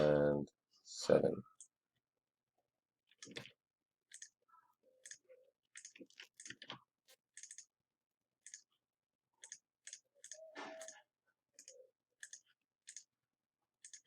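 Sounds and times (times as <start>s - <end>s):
computer mouse clicks: 4.1s - 4.4s, 5.0s - 7.7s, 8.4s - 8.7s, 9.4s - 11.0s, 11.6s - 13.1s, 13.8s - 14.0s.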